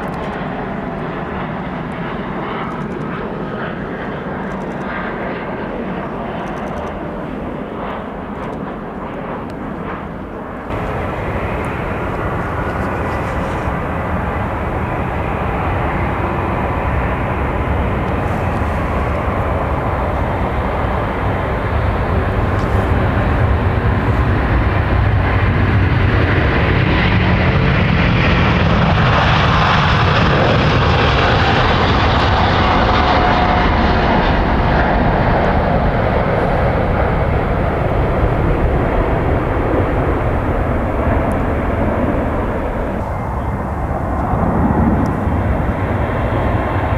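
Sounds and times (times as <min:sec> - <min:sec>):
jet engines roaring past: 0:00.0 - 0:46.9.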